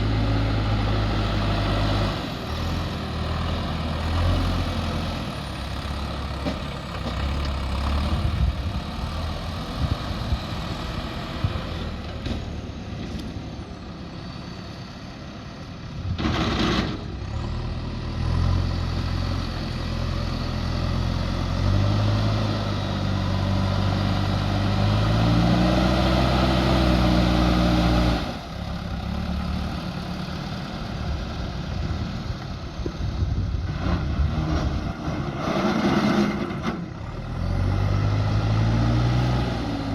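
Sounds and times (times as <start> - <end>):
backhoe diesel engine working: 0.0 - 39.9.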